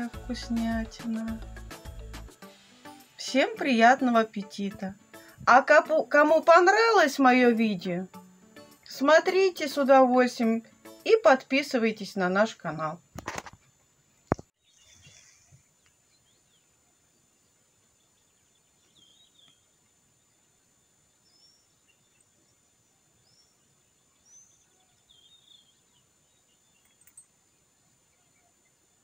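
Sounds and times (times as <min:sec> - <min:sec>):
soft steady hiss: 0:00.0 - 0:29.0
small birds chirping: 0:14.0 - 0:29.0.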